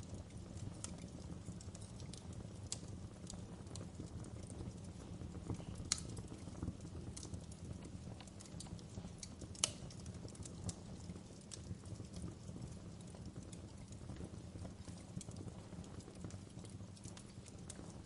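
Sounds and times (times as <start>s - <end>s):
fire rumbling: 0.0s - 18.0s
logs crackling and popping: 0.0s - 18.0s
sharp wood snaps: 5.9s - 6.1s, 9.2s - 9.9s.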